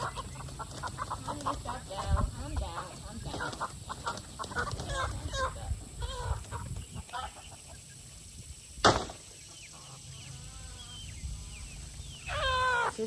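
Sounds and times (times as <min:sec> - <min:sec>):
hens clucking and squawking: 0:00.0 - 0:08.3, 0:09.4 - 0:13.0
sharp thump: 0:08.8 - 0:09.3.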